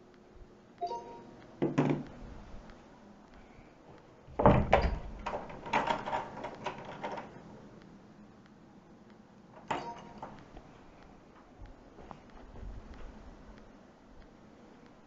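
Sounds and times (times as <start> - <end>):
clicks and rattles: 4.4 - 7.4.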